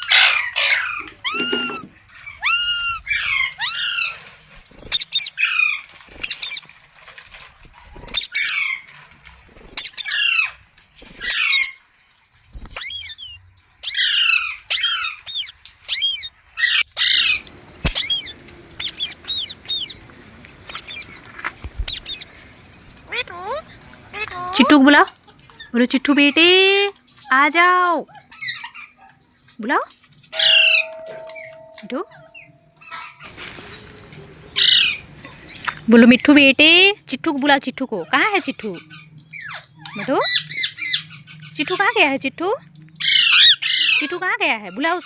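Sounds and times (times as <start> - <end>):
parakeet squawking: 0.0 - 4.1, 12.8 - 20.0, 23.1 - 25.0, 30.4 - 33.2, 34.6 - 35.1, 38.1 - 45.0
faint high whine: 30.4 - 43.1.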